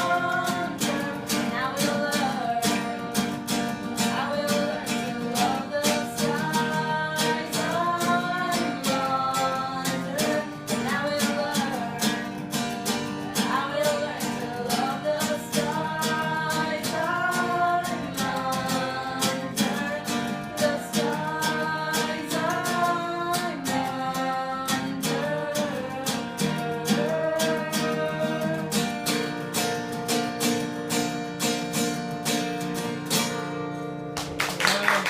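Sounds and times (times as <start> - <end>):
person singing: 0.0 - 29.5
acoustic guitar strumming: 0.0 - 34.6
audience applause: 34.2 - 35.0.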